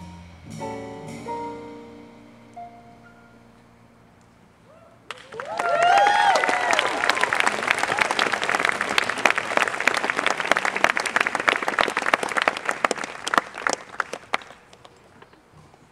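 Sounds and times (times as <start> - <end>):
person whooping: 4.6 - 7.2
audience applauding: 5.1 - 14.9.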